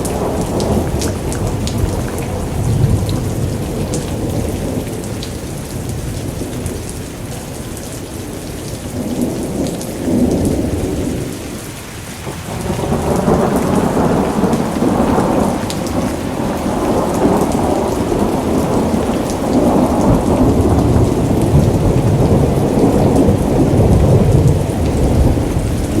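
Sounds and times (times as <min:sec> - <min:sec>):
rolling thunder: 0:00.0 - 0:06.8, 0:12.2 - 0:26.0
steady rain: 0:00.0 - 0:26.0.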